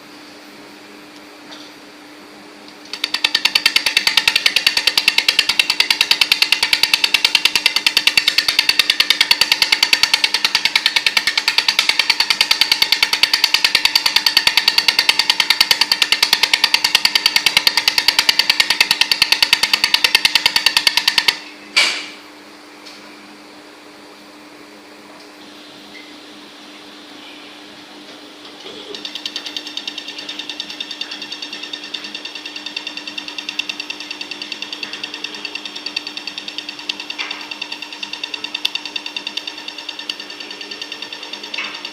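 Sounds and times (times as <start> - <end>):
steady machine hum: 0.0 - 41.9
laser welder ticking: 2.8 - 21.4, 28.9 - 41.9.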